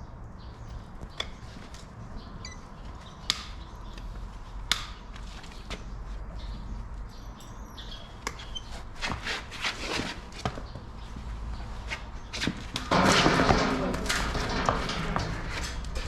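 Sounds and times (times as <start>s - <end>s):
loud scraping on hoof: 8.4s - 10.6s, 11.6s - 16.0s.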